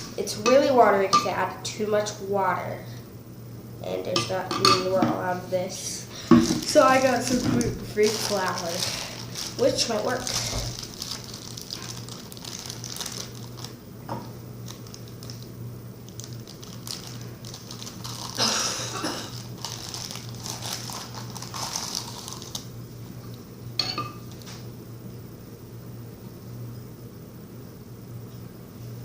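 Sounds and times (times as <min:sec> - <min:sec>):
steady low hum: 0:00.0 - 0:29.0
flour bag rustling: 0:06.1 - 0:13.8, 0:14.6 - 0:22.8
kitchen utensils clinking: 0:23.8 - 0:24.4.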